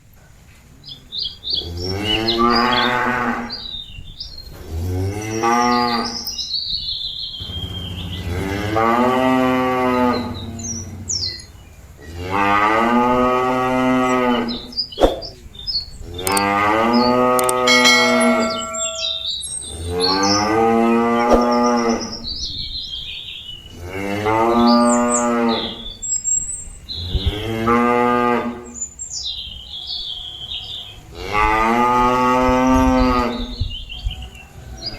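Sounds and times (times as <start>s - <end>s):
faint birds chirping: 0.0s - 8.8s, 13.8s - 27.4s, 28.6s - 31.3s, 32.8s - 34.9s.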